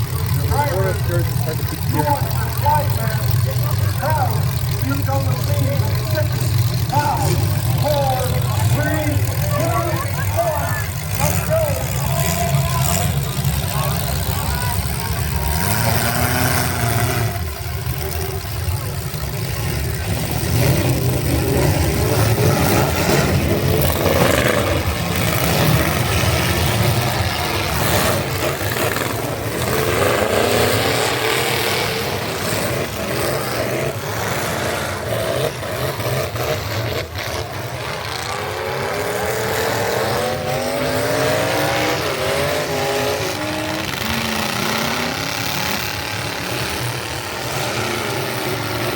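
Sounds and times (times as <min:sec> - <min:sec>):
truck engine revving: 0:00.0 - 0:48.9.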